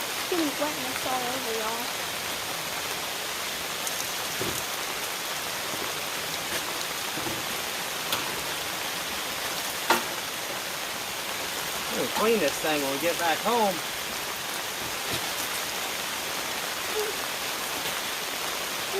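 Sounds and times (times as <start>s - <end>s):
heavy rain pouring: 0.0s - 18.9s
sharp drip-like taps: 9.8s - 10.3s.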